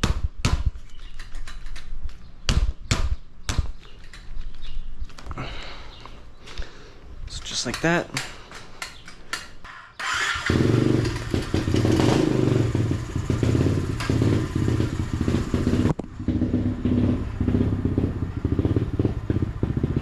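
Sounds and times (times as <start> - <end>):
dirt bike engine running: 10.2 - 20.0.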